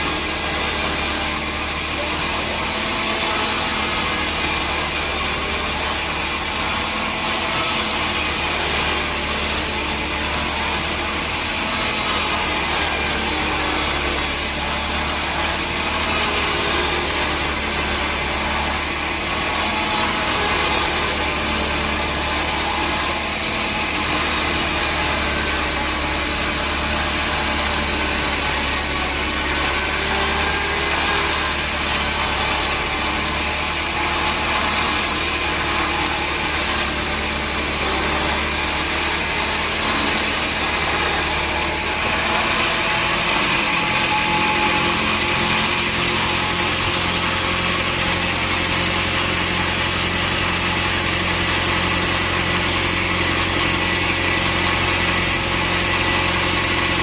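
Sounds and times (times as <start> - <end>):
saw cutting through wood: 0.0 - 57.0
engine drone: 25.6 - 50.6.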